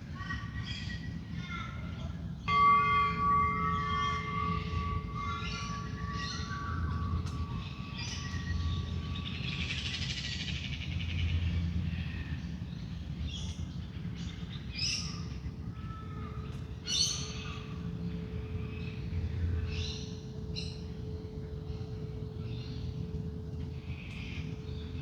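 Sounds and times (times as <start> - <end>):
low background rumble: 0.0 - 25.0
singing bowl drone: 2.4 - 10.9, 16.9 - 25.0
bird trill: 2.4 - 11.3.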